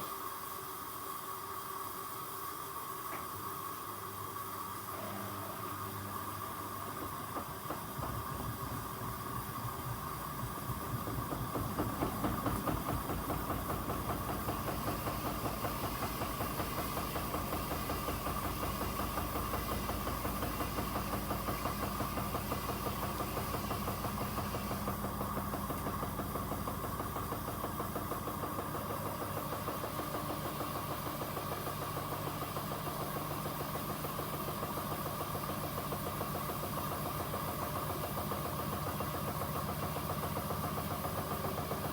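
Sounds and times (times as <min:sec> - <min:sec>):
washing machine drum turning: 0:06.7 - 0:41.9.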